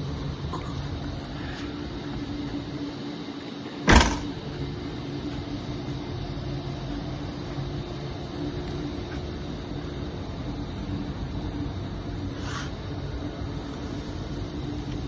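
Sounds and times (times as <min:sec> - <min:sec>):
minivan engine idling: 0:00.0 - 0:15.0
car door shutting: 0:03.9 - 0:04.3.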